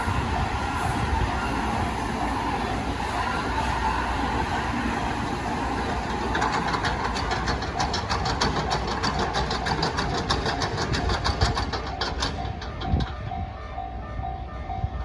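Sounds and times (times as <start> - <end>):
train rumbling: 0.0 - 15.0
sharp wheel clacks: 5.8 - 13.2.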